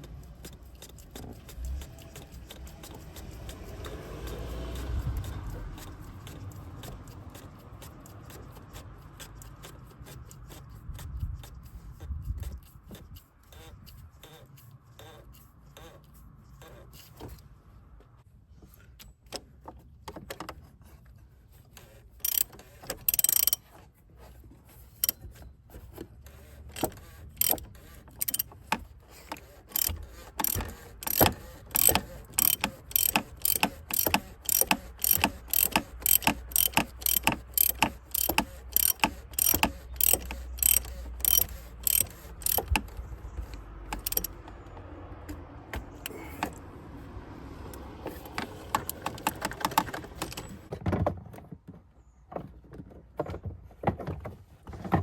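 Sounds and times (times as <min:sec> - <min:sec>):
ratchet wrench clicking: 0:22.2 - 0:23.6, 0:26.8 - 0:44.4, 0:48.1 - 0:50.6.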